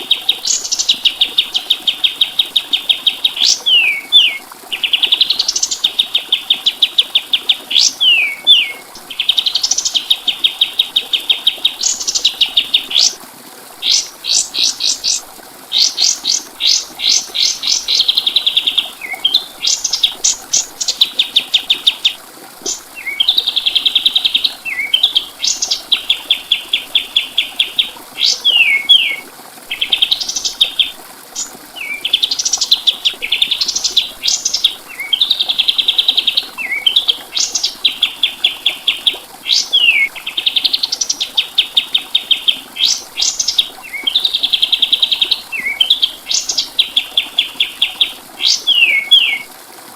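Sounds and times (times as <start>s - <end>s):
bird singing fast high trills: 7.7s - 9.8s.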